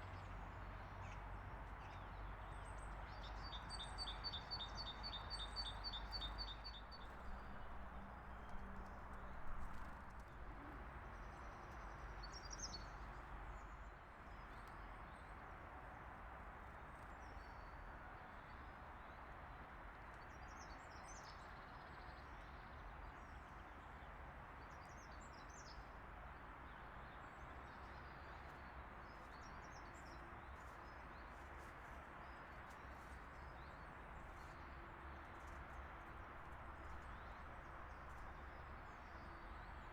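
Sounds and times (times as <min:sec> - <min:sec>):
songbirds chirping: 0:20.1 - 0:39.9.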